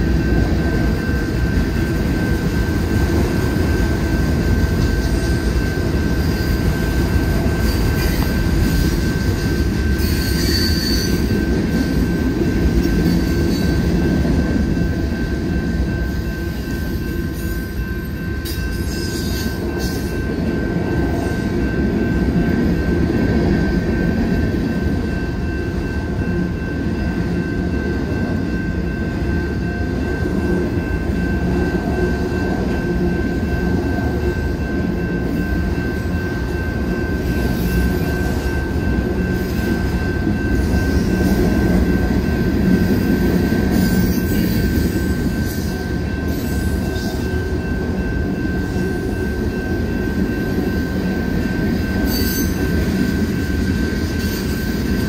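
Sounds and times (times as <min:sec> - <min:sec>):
freight train cars rolling past: 0:00.0 - 0:55.0.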